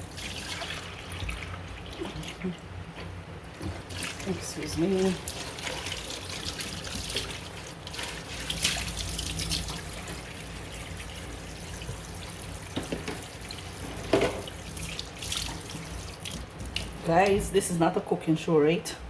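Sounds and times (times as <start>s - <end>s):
tap running into sink: 12.7s - 14.6s.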